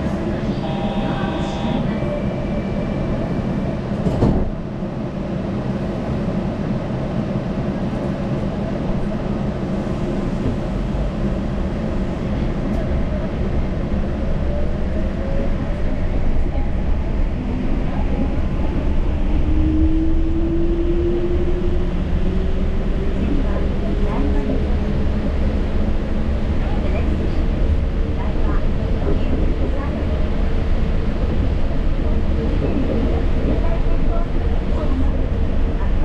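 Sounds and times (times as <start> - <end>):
train running rumble: 0.0 - 36.0.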